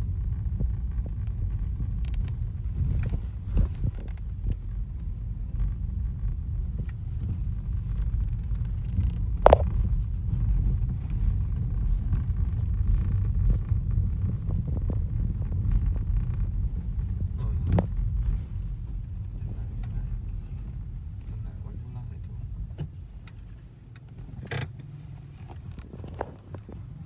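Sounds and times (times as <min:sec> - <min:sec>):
vehicle rumble: 0:00.0 - 0:27.0
light clicks and knocks: 0:07.8 - 0:09.9.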